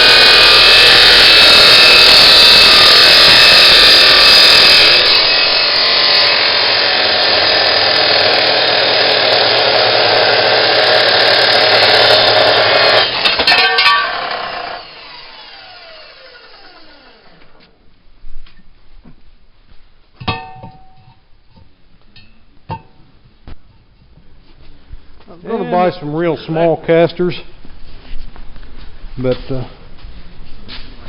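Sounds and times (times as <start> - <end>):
metal-cutting saw grinding steel: 0.0 - 17.6
saw blade winding down whine: 0.0 - 17.8.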